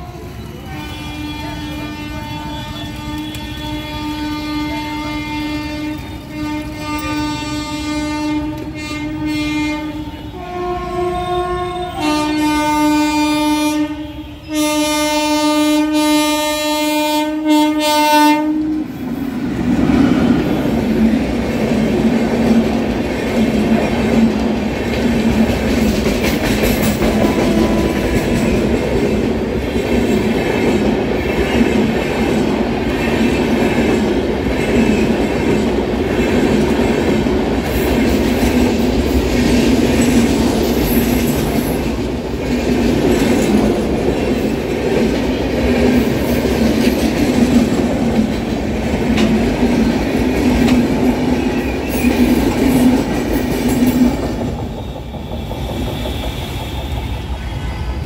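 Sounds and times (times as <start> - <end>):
locomotive horn blast: 0.0 - 19.0, 27.2 - 28.5
train passing with heavy rumble: 0.0 - 58.0
wheels clacking on rail joints: 20.6 - 57.4.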